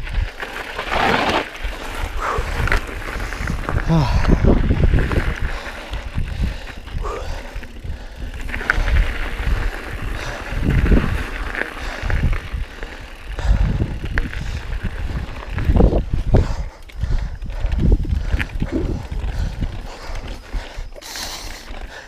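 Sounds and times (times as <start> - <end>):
mountain bike on rough trail: 0.0 - 22.0.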